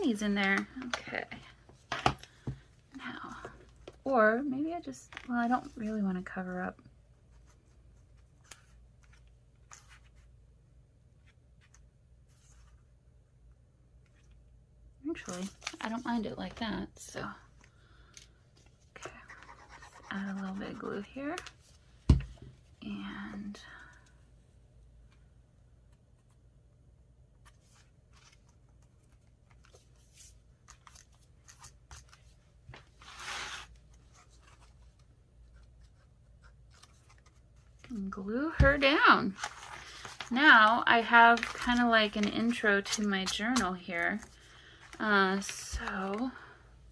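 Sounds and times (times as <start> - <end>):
scratchy paper rub: 19.2 - 21.0
paper rustling: 27.4 - 46.4.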